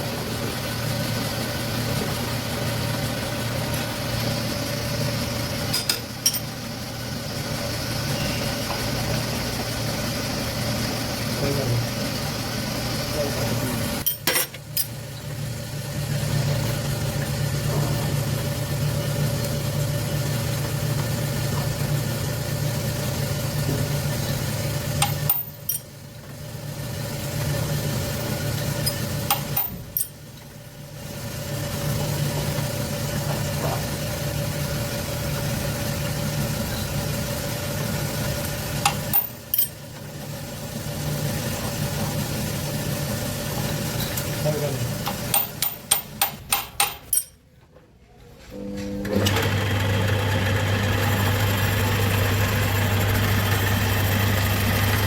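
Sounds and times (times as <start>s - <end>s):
boring machine humming: 48.5s - 55.0s.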